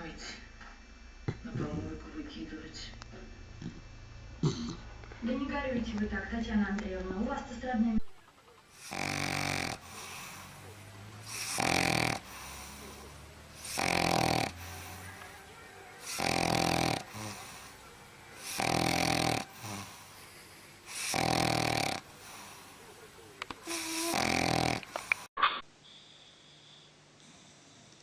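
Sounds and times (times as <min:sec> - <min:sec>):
dog snoring loudly: 0:08.7 - 0:25.3
dog breathing: 0:08.7 - 0:27.9.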